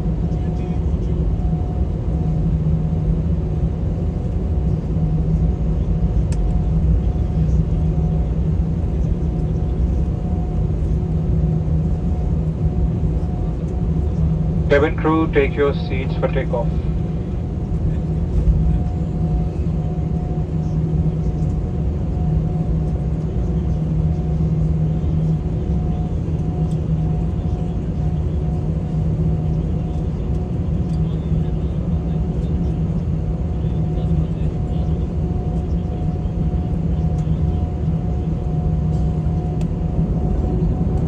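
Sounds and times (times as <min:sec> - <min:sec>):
airliner cabin engine rumble: 0:00.0 - 0:41.0
constant hum: 0:00.0 - 0:41.0
steady hum: 0:14.6 - 0:17.5.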